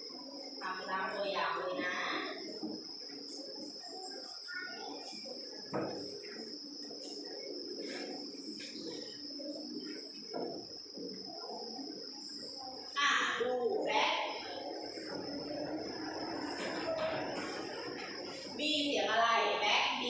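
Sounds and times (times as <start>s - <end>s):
high-pitched whine or insect drone: 0.0s - 20.0s
children's voices: 0.2s - 10.2s, 11.0s - 20.0s
knock: 5.7s - 6.1s.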